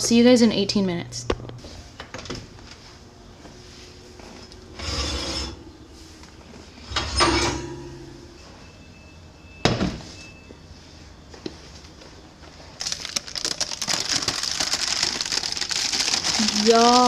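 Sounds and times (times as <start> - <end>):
kitchen utensil scraping: 4.8 - 5.6.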